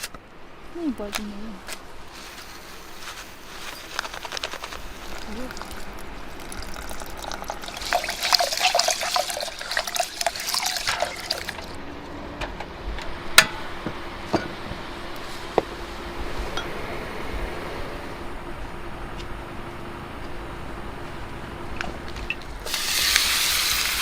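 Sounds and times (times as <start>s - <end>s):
water pouring and splashing: 2.2s - 11.8s, 22.6s - 24.0s.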